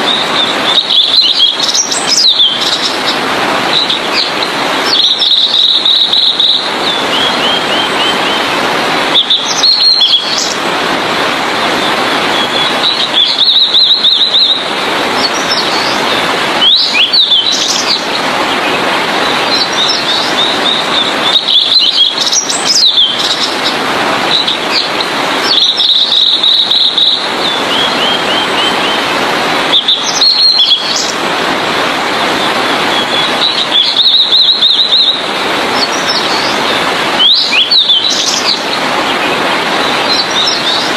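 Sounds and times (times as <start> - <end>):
bird singing trills: 0.0 - 3.1, 3.7 - 8.4, 9.2 - 10.6, 12.4 - 16.0, 16.6 - 18.2, 19.2 - 23.6, 24.3 - 29.0, 29.7 - 31.2, 32.9 - 35.2, 37.2 - 38.7
steady rushing hiss: 30.9 - 33.7.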